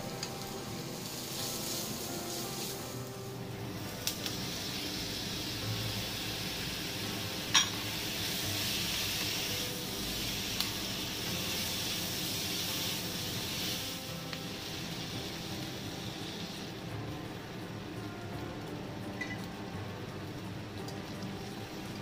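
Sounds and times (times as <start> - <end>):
vegetables sizzling in a wok: 0.0 - 22.0
spatula clinking: 7.5 - 7.9.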